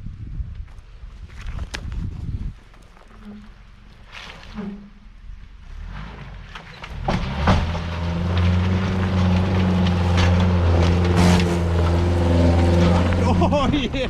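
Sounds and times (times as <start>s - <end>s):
off-road vehicle engine revving: 5.6s - 14.0s
sharp knocks: 11.1s - 12.4s.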